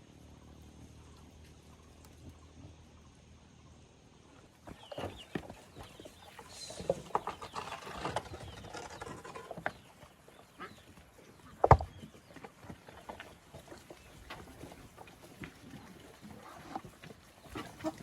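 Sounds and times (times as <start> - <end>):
pigs moving about: 4.4 - 18.0.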